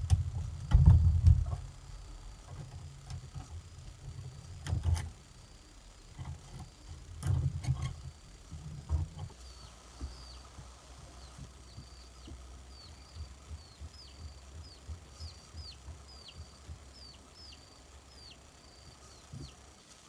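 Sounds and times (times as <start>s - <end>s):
birds chirping: 9.3s - 19.8s.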